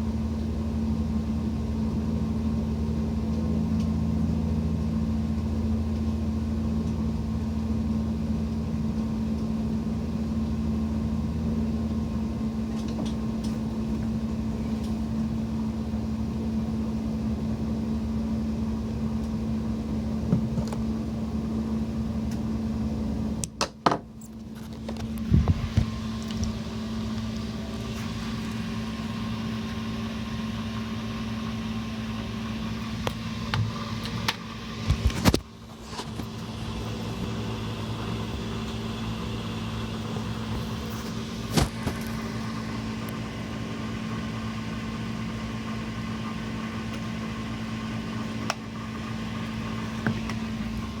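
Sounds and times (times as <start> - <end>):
boat engine humming: 0.0 - 23.4, 24.2 - 51.0.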